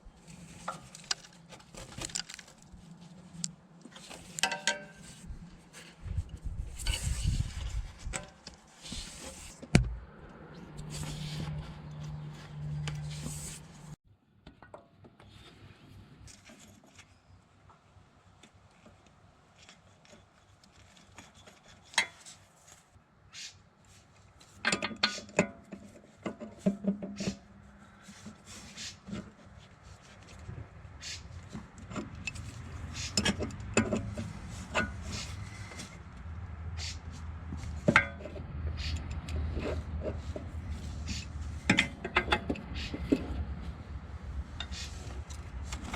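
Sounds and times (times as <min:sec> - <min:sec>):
tools clicking and scraping: 0:00.2 - 0:14.0, 0:31.1 - 0:36.1, 0:36.8 - 0:43.6, 0:44.4 - 0:45.9.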